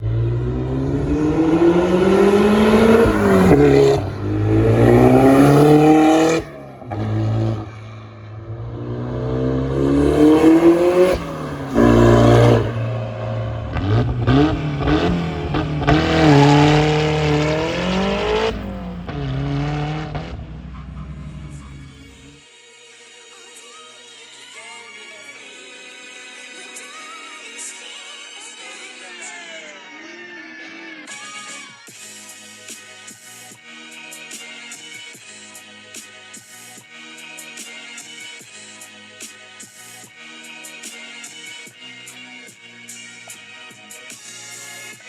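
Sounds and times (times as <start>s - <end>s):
car engine revving hard: 0.0s - 22.3s.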